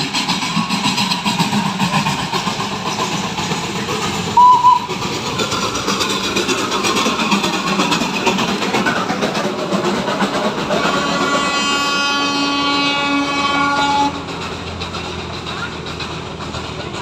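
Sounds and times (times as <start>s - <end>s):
small train running: 0.0s - 17.0s
two-note train horn toot: 4.4s - 4.9s, 11.0s - 14.2s.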